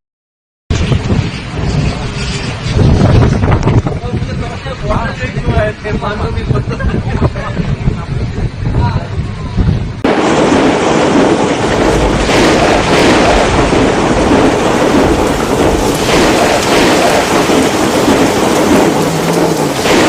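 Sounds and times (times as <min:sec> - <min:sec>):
heavy rain pouring: 0:10.0 - 0:20.0.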